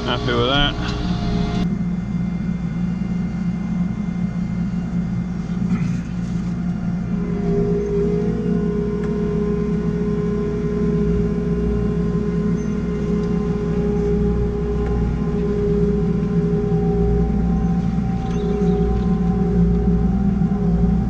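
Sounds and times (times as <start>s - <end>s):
tractor diesel engine droning: 0.0s - 1.7s, 4.6s - 21.0s
steady whine: 0.0s - 21.0s.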